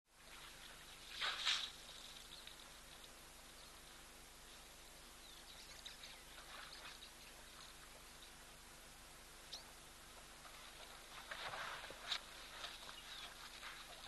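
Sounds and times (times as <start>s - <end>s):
faint background hiss and hum: 0.1s - 14.0s
faint bird chirps: 1.9s - 8.6s, 9.4s - 9.9s, 12.6s - 14.0s.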